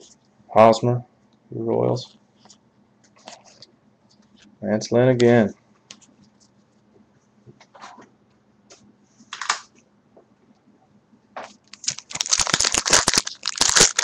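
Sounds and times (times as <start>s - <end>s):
packaging crinkling rustle: 11.4s - 14.0s.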